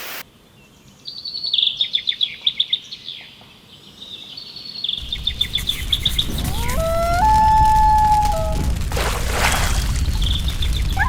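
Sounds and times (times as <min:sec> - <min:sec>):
songbird chirping and trilling: 0:00.5 - 0:07.4
low rumble: 0:05.0 - 0:11.0.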